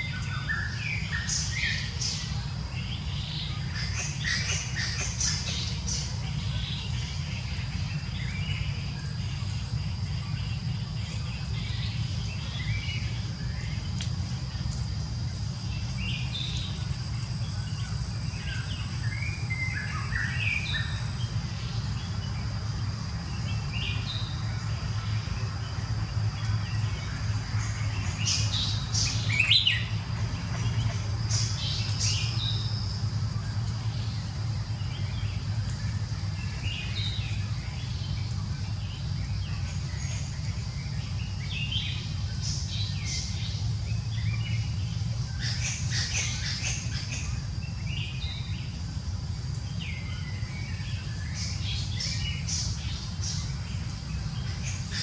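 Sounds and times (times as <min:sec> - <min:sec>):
birds chirping: 0:00.0 - 0:55.0
low background rumble: 0:00.0 - 0:55.0.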